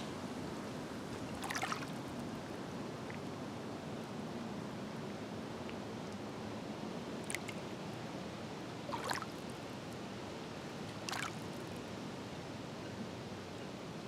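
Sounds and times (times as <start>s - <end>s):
steady wash of water: 0.0s - 9.7s, 10.7s - 12.0s
lake waves splashing: 1.0s - 3.2s, 8.8s - 9.5s, 10.9s - 11.7s.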